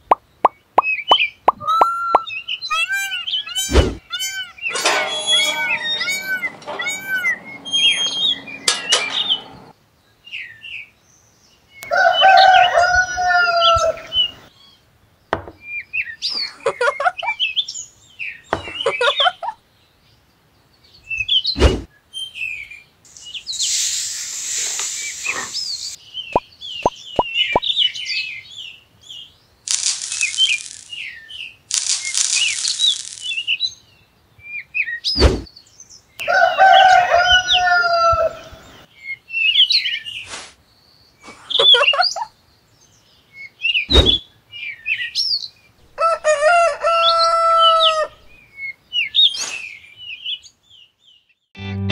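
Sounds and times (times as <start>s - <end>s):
bird chirps and calls: 0.2s - 9.7s, 22.2s - 36.0s
bursts of hiss: 23.1s - 26.0s, 29.7s - 31.1s, 31.7s - 33.5s
sharp clicks: 29.7s - 31.0s, 31.7s - 33.4s.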